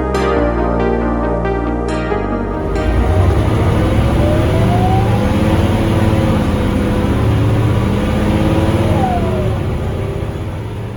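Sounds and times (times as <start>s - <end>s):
bus engine drone and whine: 2.5s - 10.9s.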